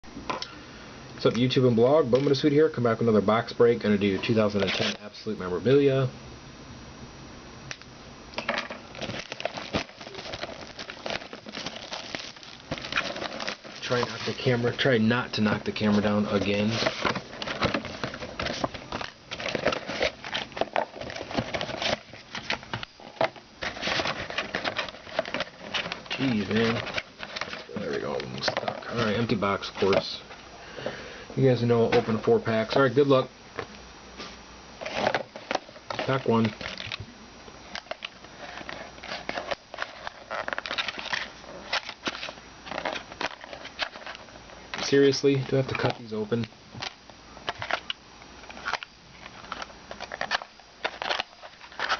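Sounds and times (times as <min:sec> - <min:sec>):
plastic wrapper crinkling: 0:08.4 - 0:30.4, 0:34.8 - 0:37.0, 0:37.6 - 0:51.9.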